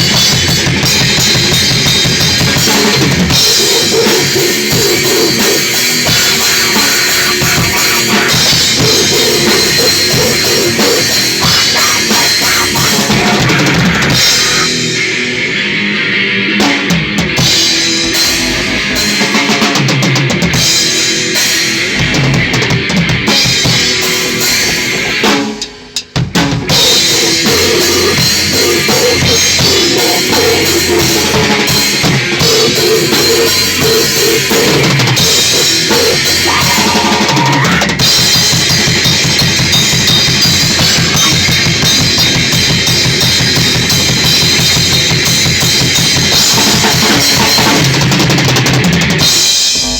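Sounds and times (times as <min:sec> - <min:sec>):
bass drum: 0:00.0 - 0:14.7, 0:17.2 - 0:20.9, 0:26.2 - 0:49.9
loud grindcore band jamming: 0:00.0 - 0:49.9.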